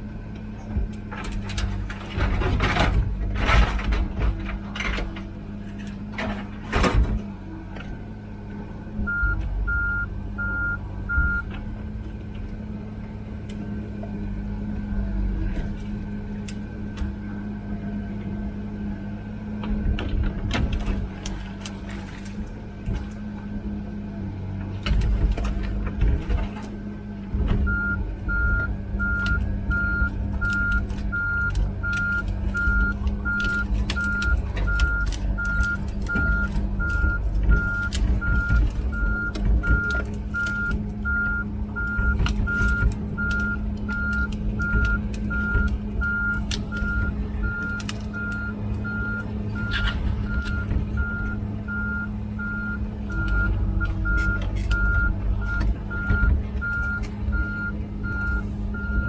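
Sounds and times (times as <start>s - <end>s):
diesel engine running: 0.0s - 59.0s
machine clanks and rattles: 0.8s - 8.0s, 24.5s - 51.8s
travel alarm beeping: 9.1s - 11.5s, 27.7s - 59.0s.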